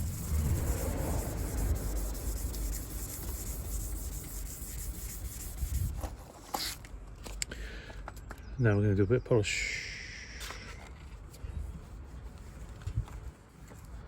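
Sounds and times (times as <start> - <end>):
sandpaper scrubbing plastic: 0.0 - 6.8.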